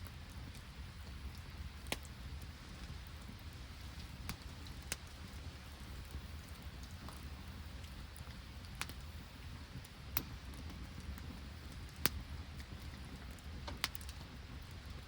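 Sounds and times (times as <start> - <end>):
campfire crackling: 0.0 - 15.0
low hiss and rumble: 0.0 - 15.0
sharp fire pops: 0.0 - 15.0.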